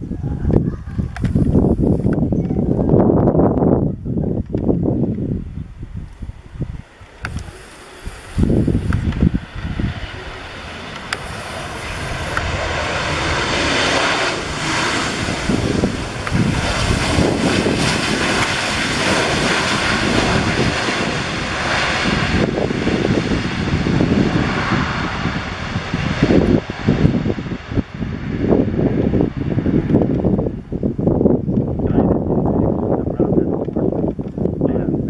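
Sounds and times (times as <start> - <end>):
jet engine roar: 1.2 - 2.3, 6.7 - 31.8.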